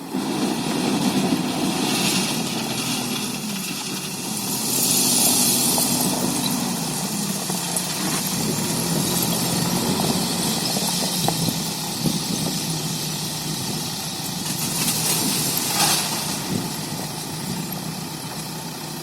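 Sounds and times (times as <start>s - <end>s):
heavy diesel engine running: 0.0s - 19.0s
hiss: 14.4s - 16.8s.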